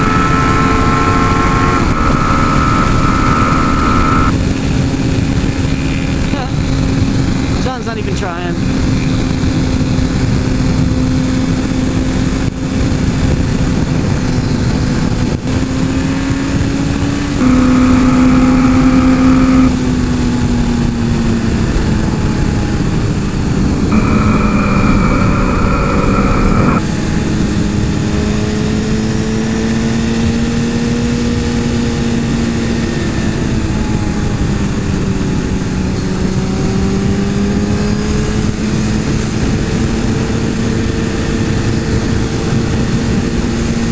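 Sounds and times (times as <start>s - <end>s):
motorcycle engine running: 0.0s - 43.9s
wind rushing over microphone: 0.0s - 43.9s.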